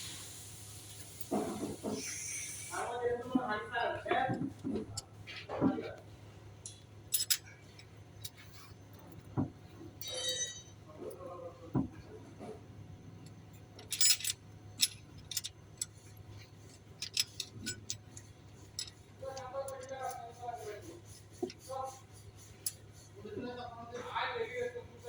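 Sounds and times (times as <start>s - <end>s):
metal tools clinking on metal: 6.7s - 9.2s, 10.0s - 11.2s, 13.2s - 20.8s.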